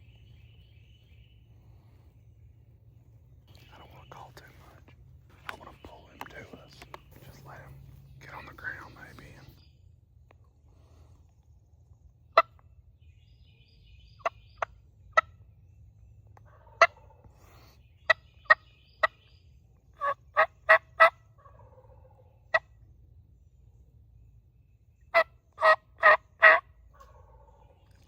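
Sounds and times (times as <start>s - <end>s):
turkey yelping: 16.4s - 17.3s, 20.0s - 22.7s, 25.1s - 27.7s
turkey clucking: 16.4s - 17.4s, 20.0s - 22.7s, 25.1s - 27.7s.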